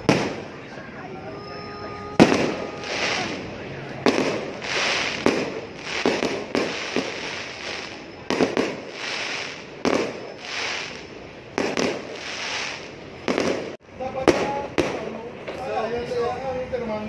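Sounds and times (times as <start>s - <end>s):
fireworks bangs: 0.0s - 1.1s, 1.8s - 15.6s
hissing crackle: 2.2s - 13.8s.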